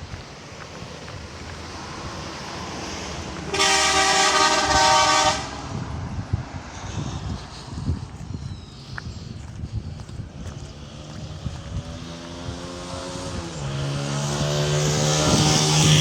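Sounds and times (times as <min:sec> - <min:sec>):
road traffic rumble: 0:00.0 - 0:16.0
vehicle horn blast: 0:03.5 - 0:05.8.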